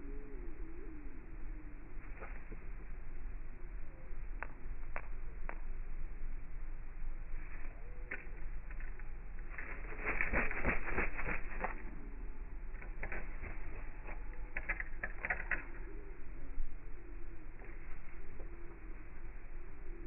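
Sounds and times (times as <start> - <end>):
steady low hum: 0.0 - 20.0
birds tapping and clicking: 12.7 - 16.1.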